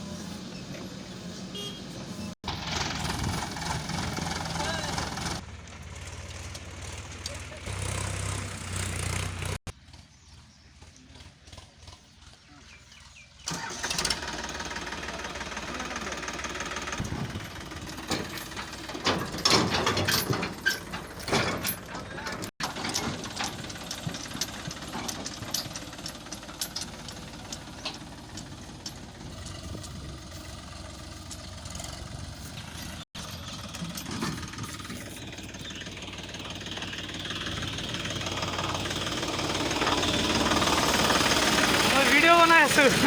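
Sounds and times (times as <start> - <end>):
diesel engine running: 0.0 - 43.0
metal clanks and knocks: 16.3 - 41.8.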